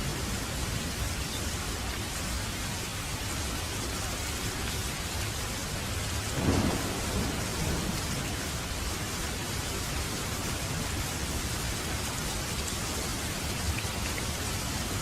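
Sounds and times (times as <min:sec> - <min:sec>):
steady rain: 0:00.0 - 0:15.0
thunder rolling: 0:06.4 - 0:08.8.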